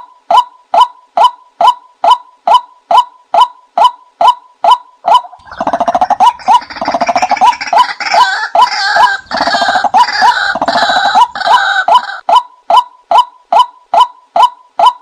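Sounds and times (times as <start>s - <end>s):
bird calling rising notes: 5.0s - 12.3s
fast pulsing bird notes: 5.1s - 12.2s.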